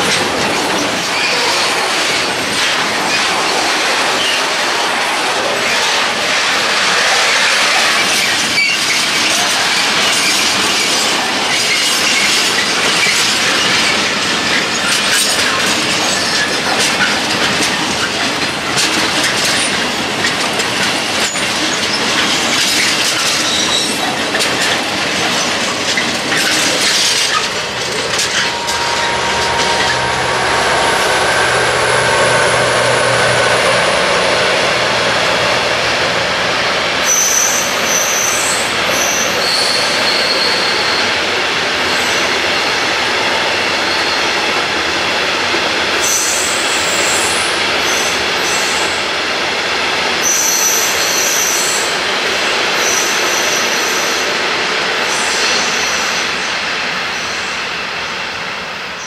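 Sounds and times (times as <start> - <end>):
freight train rolling past: 0.0 - 59.0
wheels clattering over rail joints: 7.7 - 30.1.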